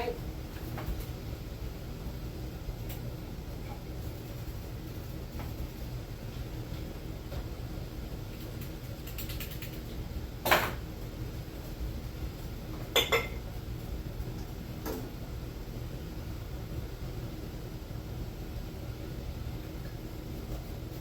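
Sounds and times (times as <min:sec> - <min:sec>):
steady low hum: 0:00.0 - 0:21.0
glass jars clinking: 0:13.0 - 0:13.4.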